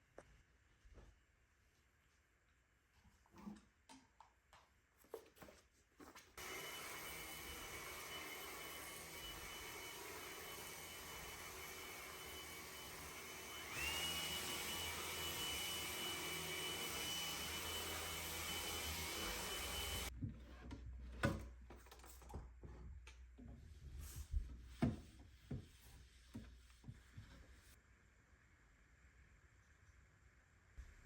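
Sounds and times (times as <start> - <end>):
appliance motor humming and whining: 6.4 - 20.1.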